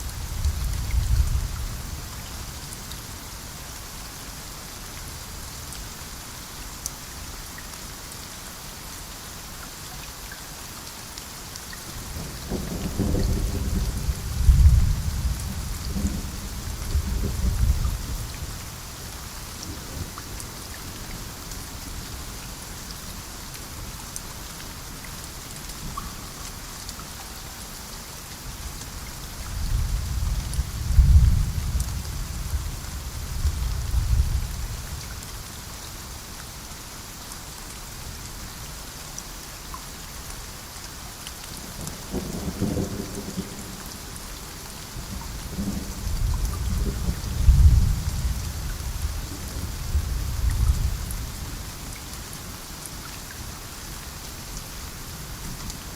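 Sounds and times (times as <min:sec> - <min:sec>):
steady rain falling: 0:00.0 - 0:55.9
rolling thunder: 0:12.2 - 0:18.3, 0:29.6 - 0:32.6, 0:45.4 - 0:51.2.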